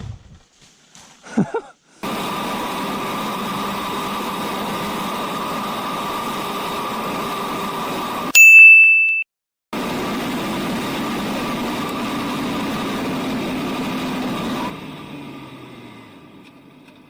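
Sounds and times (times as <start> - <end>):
road noise: 2.0 - 8.3, 9.8 - 17.0
vehicle engine running: 9.8 - 17.0.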